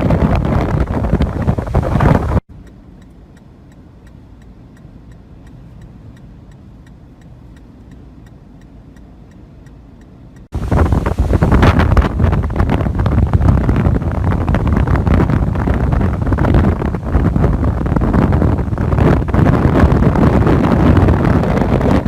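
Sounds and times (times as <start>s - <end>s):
strong wind buffeting microphone: 0.0s - 2.4s, 10.5s - 22.0s
faint ticking: 2.5s - 10.5s.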